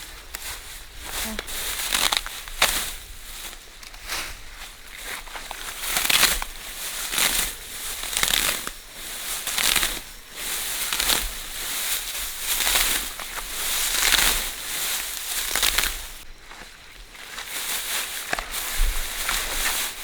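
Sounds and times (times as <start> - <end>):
dry plants crunching and rustling: 0.0 - 20.0.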